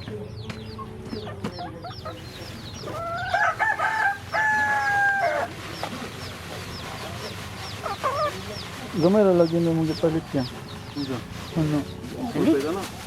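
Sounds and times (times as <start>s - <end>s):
rooster crowing: 3.0s - 5.5s.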